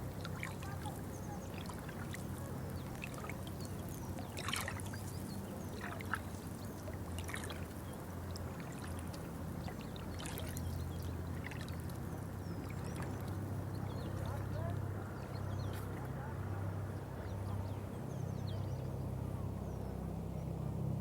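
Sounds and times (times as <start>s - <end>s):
water trickling and pouring: 0.0s - 14.4s
water splashes: 0.0s - 17.2s
steady low hum: 0.0s - 21.0s.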